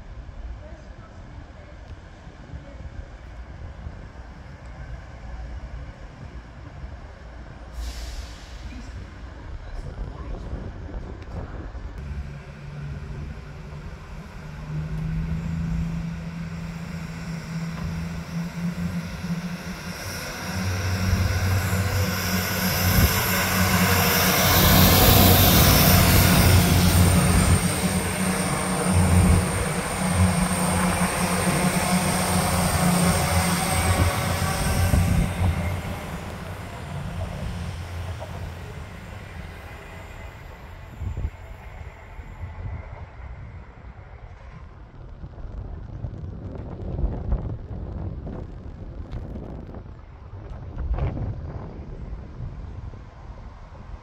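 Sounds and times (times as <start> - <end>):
train hiss: 7.5 - 9.5
diesel train engines humming: 11.4 - 45.6
high whine: 12.0 - 44.7.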